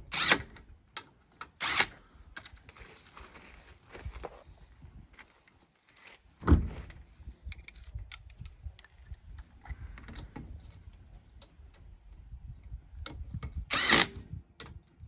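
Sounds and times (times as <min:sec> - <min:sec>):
heavy thump: 0:06.4 - 0:07.0.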